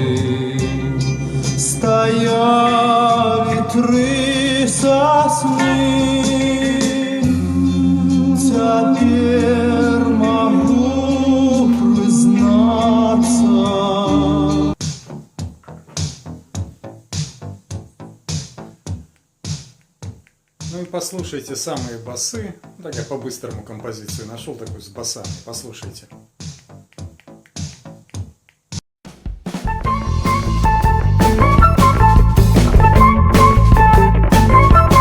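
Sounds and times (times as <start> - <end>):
song with singing over radio: 0.0 - 14.8
sparse electronic drum beat: 14.8 - 25.6, 29.1 - 35.0.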